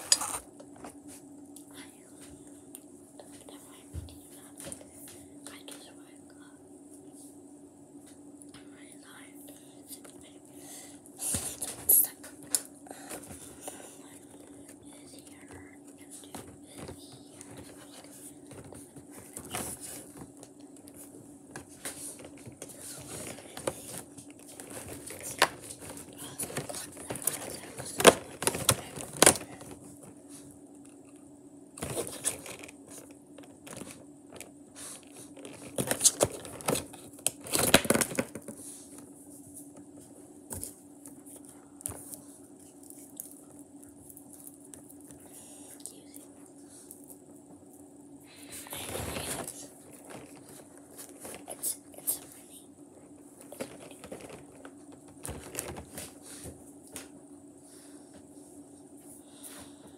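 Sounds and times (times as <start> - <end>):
faint steady hum: 0.0 - 59.9
cardboard and wrapper crinkling: 22.1 - 29.9, 35.2 - 38.6, 53.4 - 56.1.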